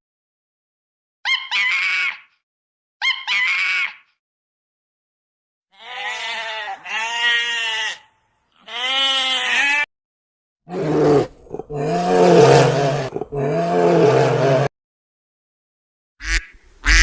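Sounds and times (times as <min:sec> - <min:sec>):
goats bleating: 0:05.8 - 0:09.9.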